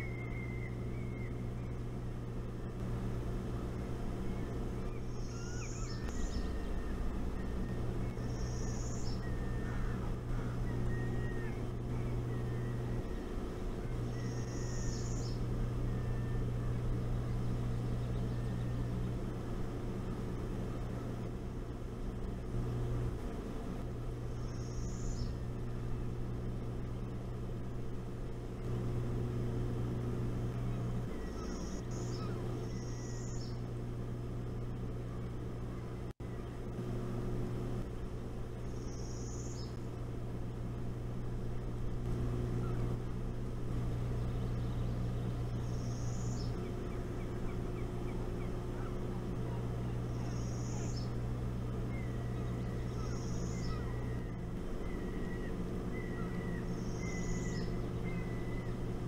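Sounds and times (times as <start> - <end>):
steady low hum: 0.0 - 59.0
high-pitched bird call: 4.2 - 16.8, 30.7 - 33.6, 51.9 - 58.8.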